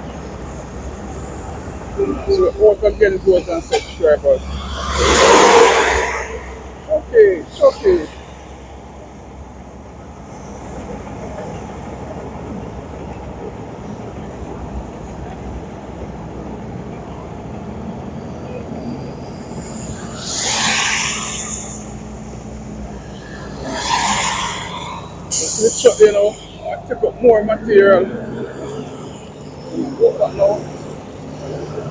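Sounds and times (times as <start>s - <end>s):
heavy engine running: 0.0s - 18.0s
loud bursts of hissing: 19.5s - 26.6s.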